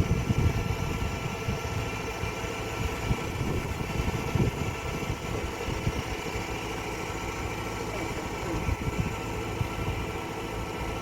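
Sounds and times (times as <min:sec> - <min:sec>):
machine engine rumbling: 0:00.0 - 0:11.0.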